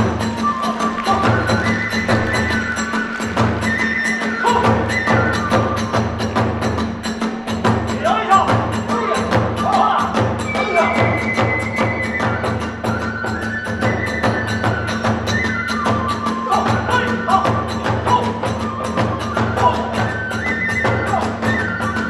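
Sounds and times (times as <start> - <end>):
rapid drum strikes: 0.0 - 11.7
bamboo flute melody: 0.0 - 22.0.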